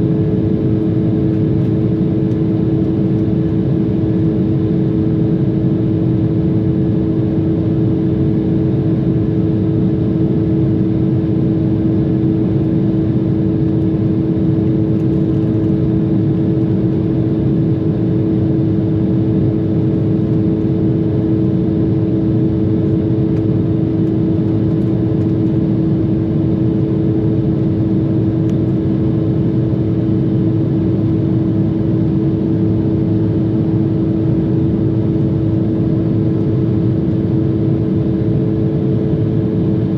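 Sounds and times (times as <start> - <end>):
jet cabin engine drone: 0.0 - 39.9.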